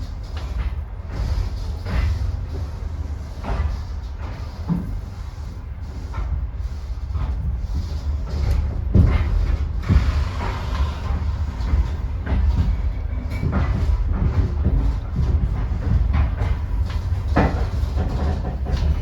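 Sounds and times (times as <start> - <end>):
train carriage rumbling: 0.0 - 19.0
train knocks and clanks: 0.0 - 19.0.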